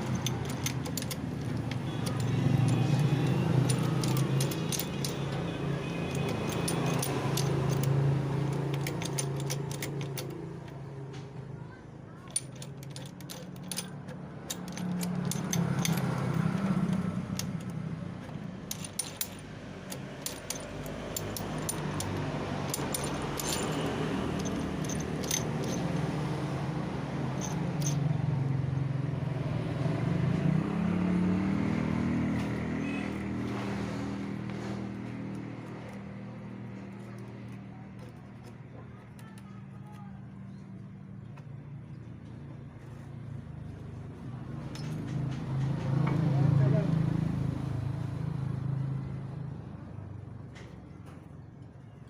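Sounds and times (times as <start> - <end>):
metal tools clinking: 0.0 - 11.0, 12.1 - 26.3, 27.2 - 28.2, 34.3 - 40.6, 44.5 - 45.8
engine humming: 0.0 - 40.2.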